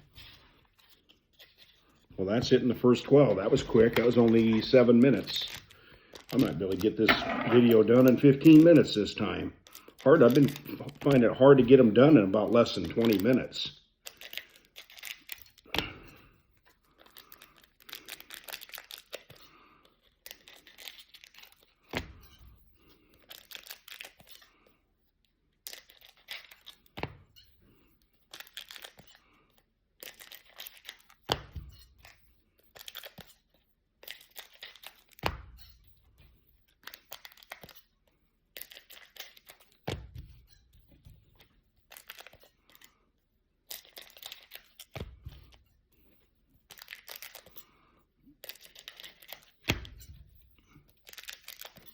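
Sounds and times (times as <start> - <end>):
cards rustling: 0.0 - 22.0, 22.7 - 24.8, 25.6 - 27.0, 27.8 - 29.4, 30.0 - 31.3, 31.9 - 35.3, 36.0 - 40.0, 41.2 - 43.0, 43.6 - 50.0, 50.6 - 51.9
wrappers tearing and crinkling: 2.8 - 9.0, 9.6 - 15.7, 16.6 - 21.9, 22.9 - 24.7, 25.6 - 27.0, 28.2 - 31.2, 32.0 - 35.2, 36.6 - 39.8, 41.8 - 43.0, 43.6 - 45.5, 46.6 - 47.7, 48.3 - 49.7, 50.8 - 51.9.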